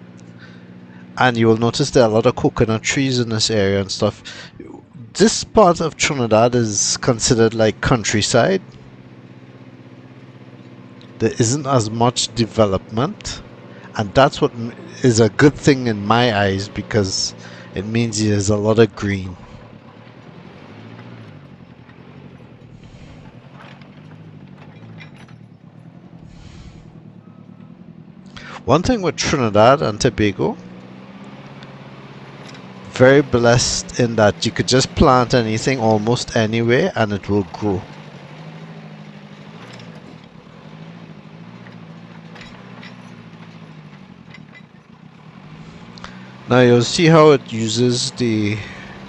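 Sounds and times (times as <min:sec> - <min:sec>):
backhoe diesel engine running: 0:00.0 - 0:49.0
faint clinks: 0:19.4 - 0:26.3, 0:37.8 - 0:46.5.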